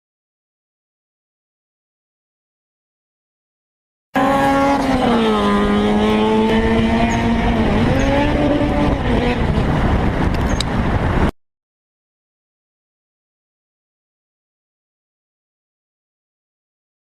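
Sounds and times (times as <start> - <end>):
car whine: 4.2 - 11.3
road noise rushing: 4.2 - 11.3.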